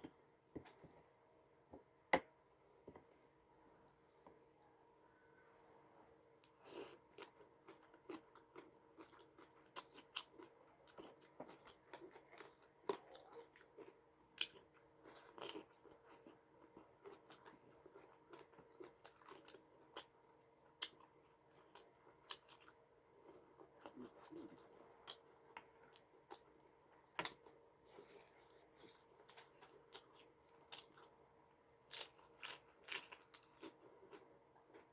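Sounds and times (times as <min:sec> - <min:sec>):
person chewing crunchy food: 0:06.7 - 0:20.1, 0:20.8 - 0:31.2, 0:31.9 - 0:34.9.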